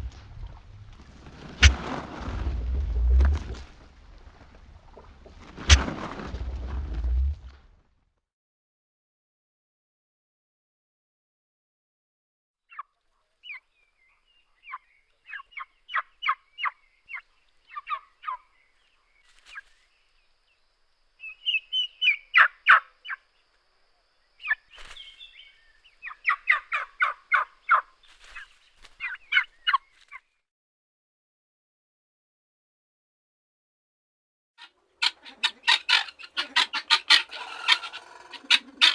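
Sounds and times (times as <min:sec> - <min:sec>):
turkey gobbling: 0:01.6 - 0:01.9, 0:05.7 - 0:05.9, 0:21.4 - 0:23.2, 0:26.0 - 0:27.9, 0:34.6 - 0:38.9.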